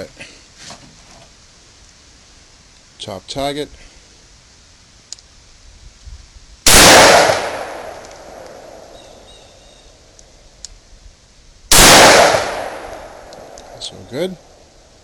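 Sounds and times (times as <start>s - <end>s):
revolver shots echoing: 6.7s - 9.2s, 11.7s - 13.9s.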